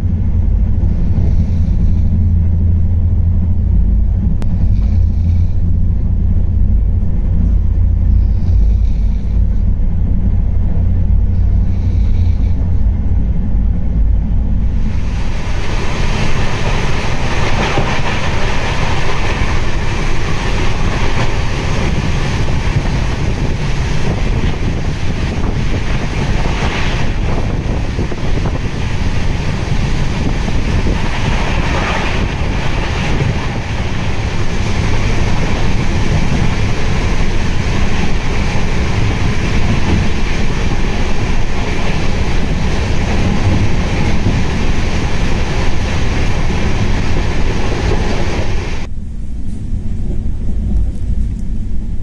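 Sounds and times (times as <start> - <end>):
faint train clatter: 0.0 - 52.0
rush of wind and wheel noise: 0.0 - 52.0
train low rumble: 0.0 - 52.0.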